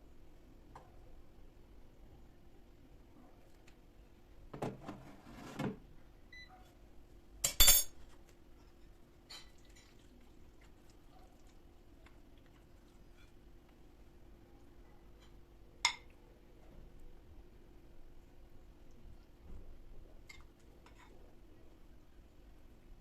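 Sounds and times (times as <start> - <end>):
faint steady hum: 0.0 - 23.0
kitchenware scraping: 4.6 - 5.8, 7.5 - 8.0
glass clinking: 7.5 - 8.0.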